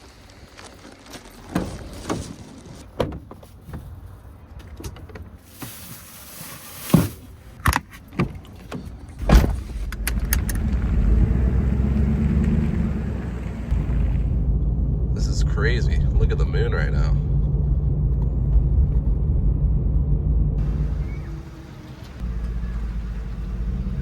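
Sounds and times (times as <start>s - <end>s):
truck engine starting and running: 6.7s - 24.0s.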